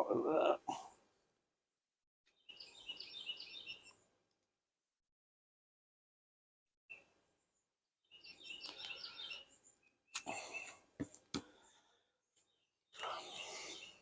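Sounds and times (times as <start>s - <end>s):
small birds chirping: 2.3s - 4.2s, 6.9s - 14.0s.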